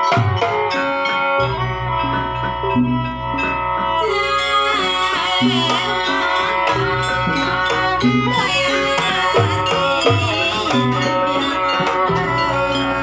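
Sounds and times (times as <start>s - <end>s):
hand drums steady beat: 0.0s - 13.0s
sliding melodic lead line: 0.0s - 13.0s.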